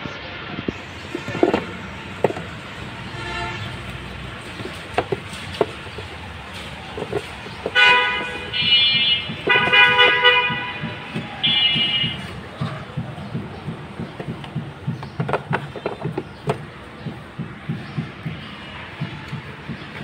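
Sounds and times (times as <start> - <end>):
loud horn blasts: 0.7 - 6.1, 7.0 - 12.7
knocks: 0.7 - 20.0.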